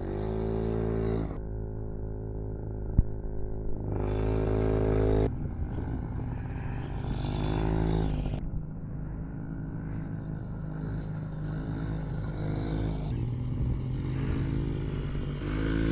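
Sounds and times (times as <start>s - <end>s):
dirt bike two-stroke engine revving: 0.0s - 1.4s, 3.9s - 8.4s, 10.6s - 15.9s.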